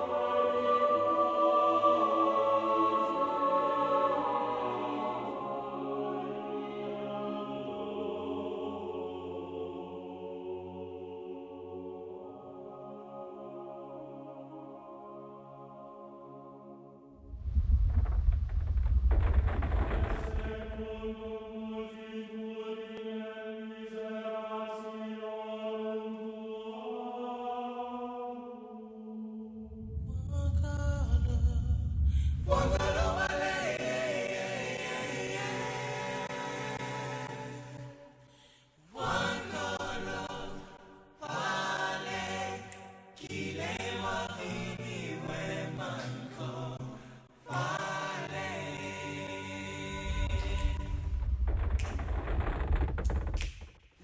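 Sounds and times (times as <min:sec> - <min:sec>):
song with choir-like chanting: 0:00.0 - 0:17.3, 0:19.6 - 0:51.7.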